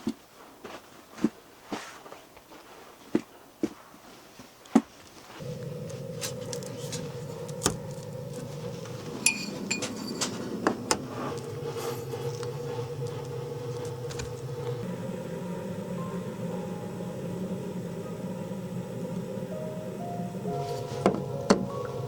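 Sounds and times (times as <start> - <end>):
steady low hum: 5.4 - 22.0
cookware clinking: 9.1 - 12.9.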